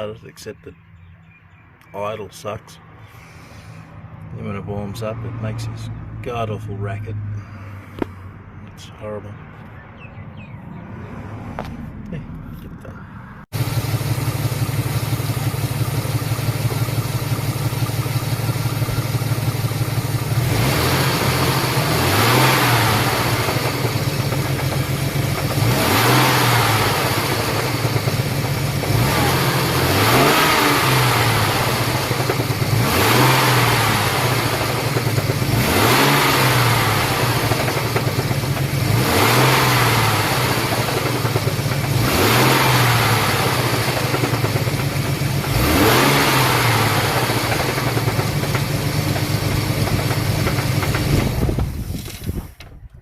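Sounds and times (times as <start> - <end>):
car engine revving: 10.4 - 52.3.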